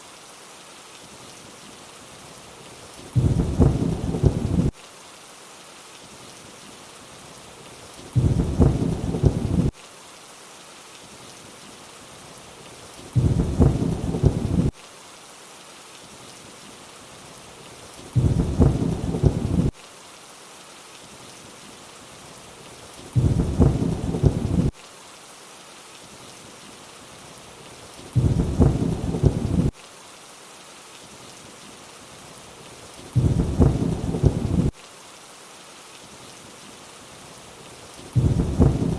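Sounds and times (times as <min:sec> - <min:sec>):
rain hissing: 0:00.0 - 0:38.9
thunder rumble: 0:03.2 - 0:04.7, 0:08.2 - 0:09.7, 0:13.2 - 0:14.7, 0:18.2 - 0:19.7, 0:23.2 - 0:24.7, 0:28.2 - 0:29.7, 0:33.2 - 0:34.7, 0:38.2 - 0:38.9.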